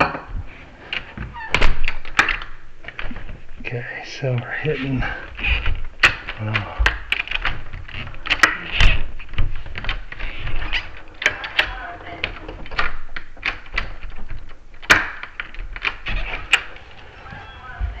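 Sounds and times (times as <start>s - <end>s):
door lock clicking and knocking: 1.0s - 3.4s, 5.4s - 16.8s.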